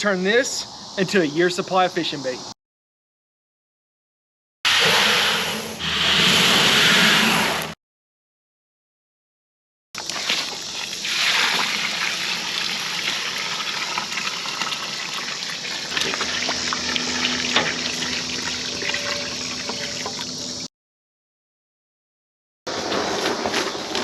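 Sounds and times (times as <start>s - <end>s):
water pouring into a container: 10.2s - 17.4s.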